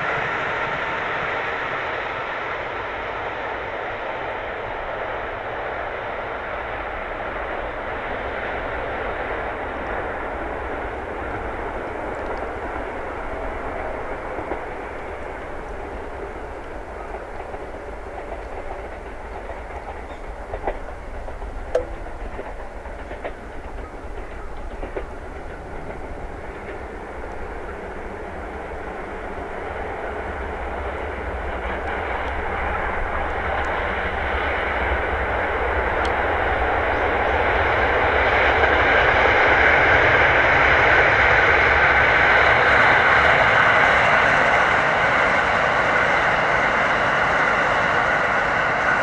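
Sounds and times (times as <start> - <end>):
train rolling rumble: 0.0 - 49.0
wheels clicking over rail joints: 8.6 - 44.1.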